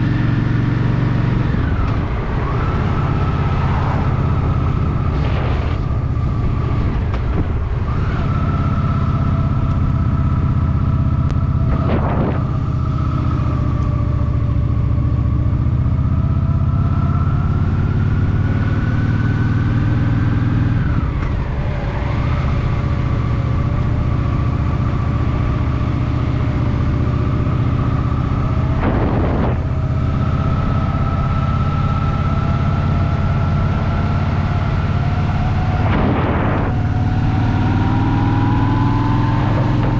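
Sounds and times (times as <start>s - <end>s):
motorcycle engine running: 0.0s - 39.9s
wind noise on microphone: 1.0s - 9.0s, 11.3s - 12.9s, 27.5s - 31.3s, 34.3s - 39.9s
short rushes of noise: 35.8s - 36.9s.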